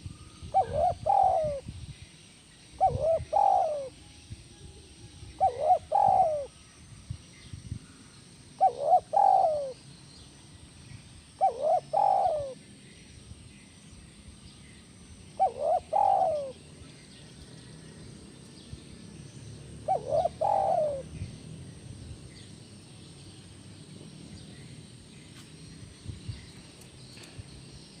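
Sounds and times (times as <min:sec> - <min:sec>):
dove cooing: 0:00.0 - 0:01.7, 0:02.8 - 0:04.0, 0:05.3 - 0:06.5, 0:08.6 - 0:09.8, 0:11.4 - 0:12.7, 0:15.3 - 0:16.8, 0:19.8 - 0:21.3.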